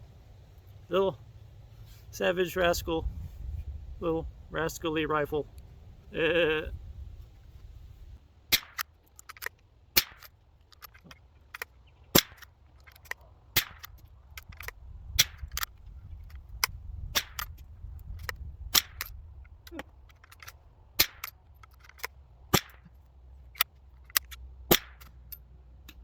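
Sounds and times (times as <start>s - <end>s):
rifle shots cracking: 8.5s - 10.3s, 12.1s - 12.5s, 13.5s - 15.7s, 18.7s - 19.1s, 21.0s - 21.4s, 22.0s - 22.9s, 24.2s - 25.1s
rifle bolt clicks: 8.5s - 26.0s.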